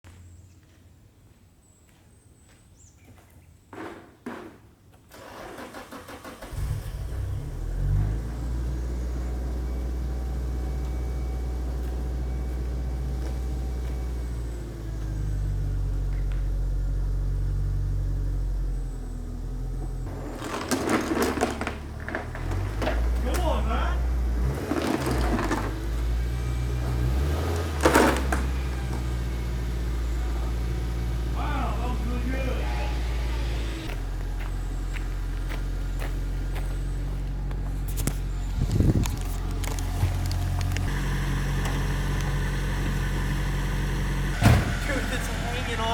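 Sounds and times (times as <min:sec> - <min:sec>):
car engine starting and idling: 0:05.1 - 0:45.9
short clunks: 0:18.8 - 0:45.4.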